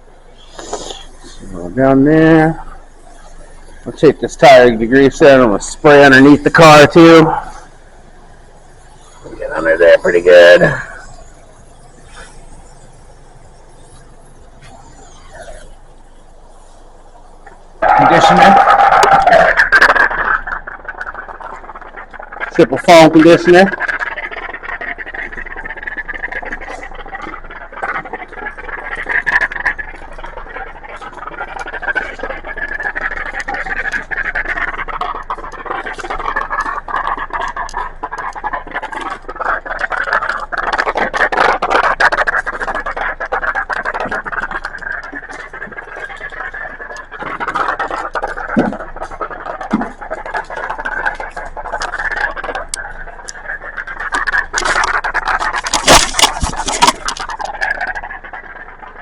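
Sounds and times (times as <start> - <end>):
foam spray hissing: 0.4 - 1.8.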